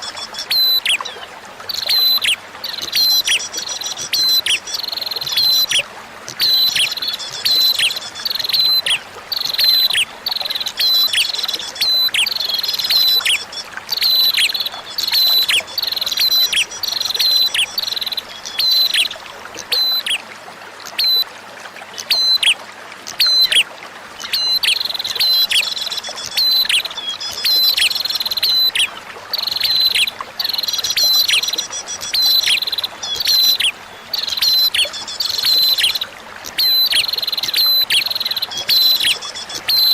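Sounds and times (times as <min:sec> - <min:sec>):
flowing water trickle: 0:00.0 - 0:39.9
bird calling: 0:24.2 - 0:39.9.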